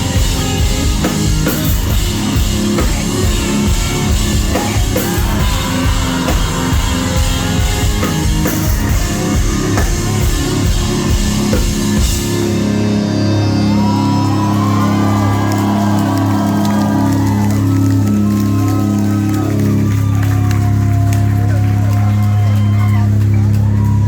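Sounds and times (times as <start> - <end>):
busy drum kit: 0.0 - 16.5
live rock band playing: 0.0 - 24.0.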